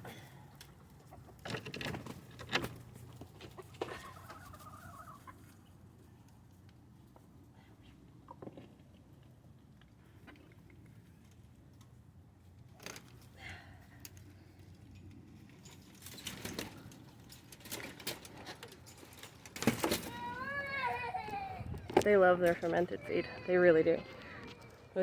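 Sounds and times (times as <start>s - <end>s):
chickens pecking at feed: 0.1s - 12.0s.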